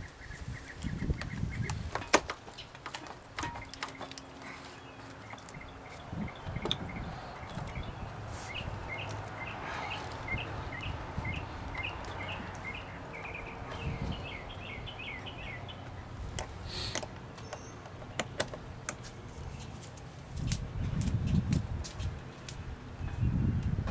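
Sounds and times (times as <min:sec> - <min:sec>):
wind rumble on microphone: 0:00.0 - 0:02.3, 0:05.4 - 0:16.6, 0:20.2 - 0:23.9
small bird chirping: 0:03.6 - 0:16.1.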